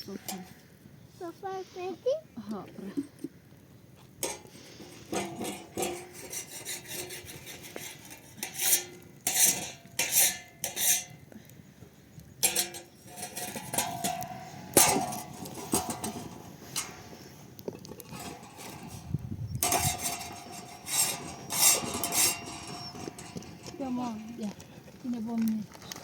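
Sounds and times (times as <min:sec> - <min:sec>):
short scraping strokes: 0:04.2 - 0:11.1, 0:18.1 - 0:24.2
metal pots and dishes clinking: 0:04.2 - 0:11.2, 0:12.4 - 0:17.1, 0:18.0 - 0:23.8.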